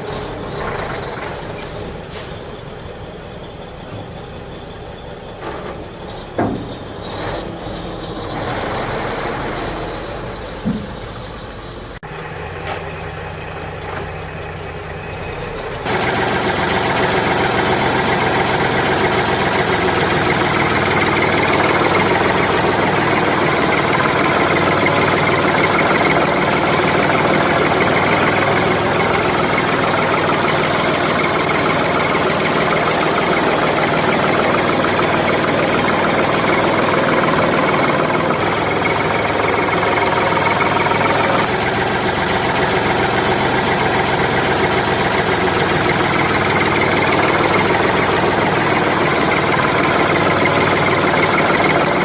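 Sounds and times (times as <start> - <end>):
small engine running: 12.0 - 52.0.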